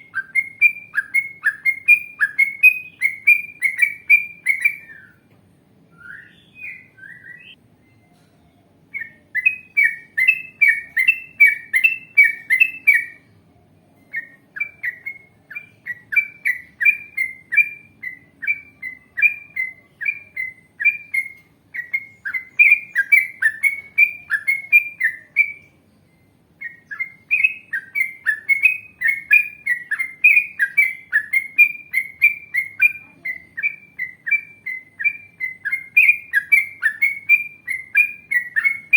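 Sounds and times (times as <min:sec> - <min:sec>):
bulbul singing chirpy notes: 0:08.8 - 0:13.3, 0:14.0 - 0:38.9.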